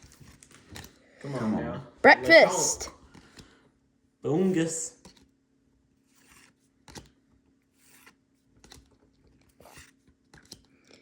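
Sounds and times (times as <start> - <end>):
trading cards rustling and clicking: 7.8 - 10.7.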